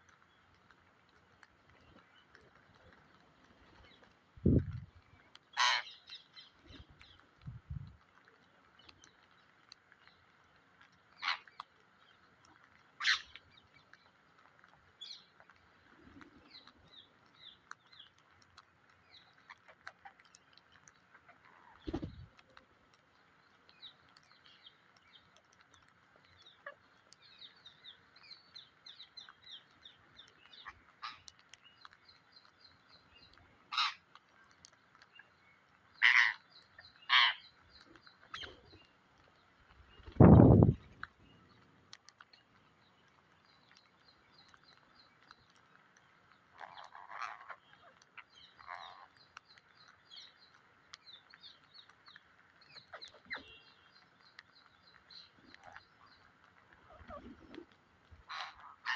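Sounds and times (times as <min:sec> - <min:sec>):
soft chirps and clicks: 0:00.0 - 0:58.9
parrot squawking: 0:37.1 - 0:37.4.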